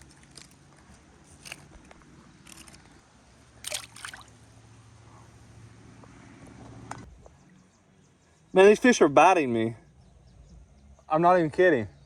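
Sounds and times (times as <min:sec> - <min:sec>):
water splashing from wading: 0:03.6 - 0:04.4.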